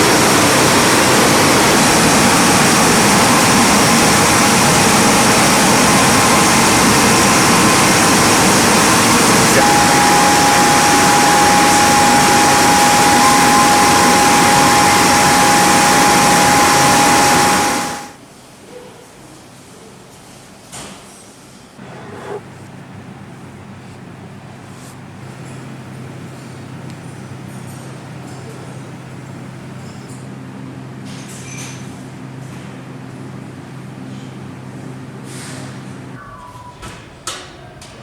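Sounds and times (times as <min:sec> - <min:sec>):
sanding machine rushing: 0:00.0 - 0:18.2
steady whine: 0:00.0 - 0:18.2.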